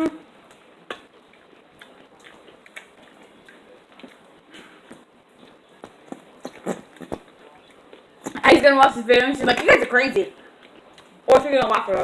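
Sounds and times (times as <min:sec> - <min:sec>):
chewing with small crunches: 0:00.4 - 0:08.5, 0:10.4 - 0:11.5
mouth clicks: 0:04.9 - 0:08.5.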